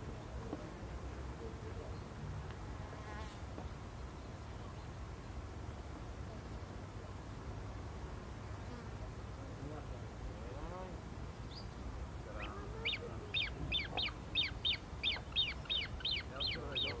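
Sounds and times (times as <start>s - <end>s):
bird calling sharp notes: 12.4s - 17.0s.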